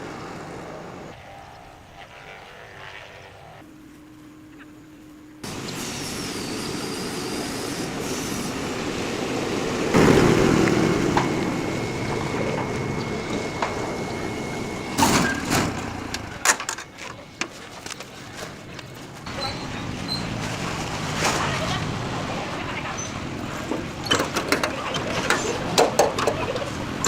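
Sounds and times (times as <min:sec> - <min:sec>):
vehicle rushing noise: 0:05.4 - 0:16.4
thin steady high tone: 0:10.2 - 0:16.0.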